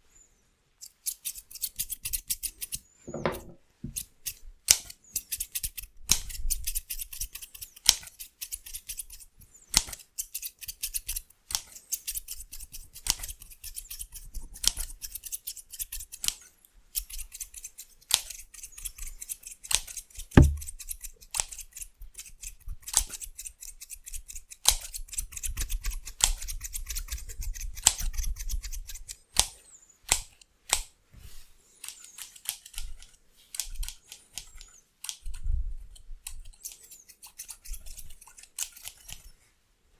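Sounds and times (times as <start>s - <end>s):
scissors snipping: 3.9s - 22.3s, 31.8s - 35.4s
dull thump: 20.4s - 20.7s.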